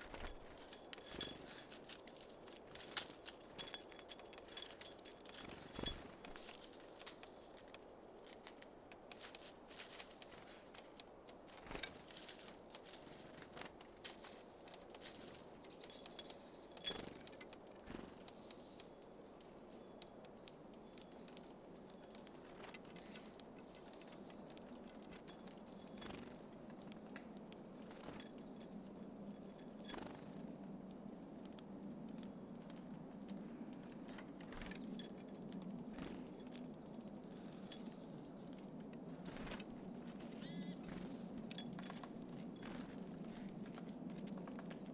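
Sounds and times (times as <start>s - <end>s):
birds pecking at seeds: 0.0s - 44.9s
high bird chirps: 40.2s - 41.8s.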